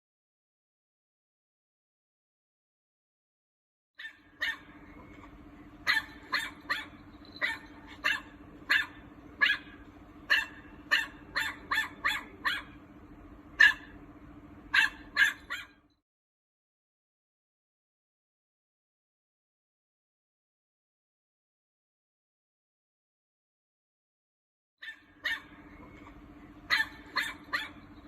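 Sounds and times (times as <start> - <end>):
dog barking: 4.0 - 4.8, 5.8 - 12.8, 13.6 - 14.0, 14.7 - 15.8, 24.8 - 28.0
steady low hum: 4.1 - 16.0, 25.0 - 28.0.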